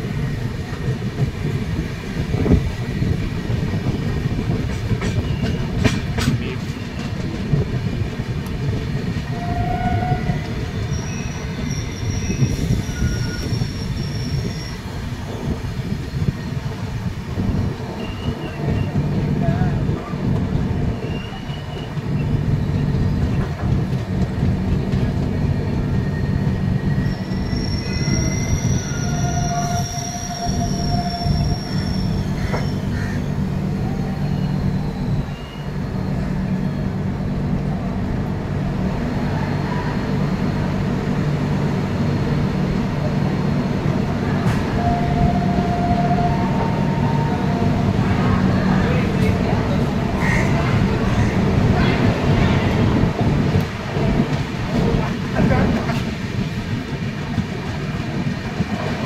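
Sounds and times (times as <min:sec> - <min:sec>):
train wheels rumbling on rails: 0:00.0 - 0:59.0
high wheel squeals: 0:09.3 - 0:14.9, 0:26.1 - 0:33.4, 0:34.0 - 0:36.8.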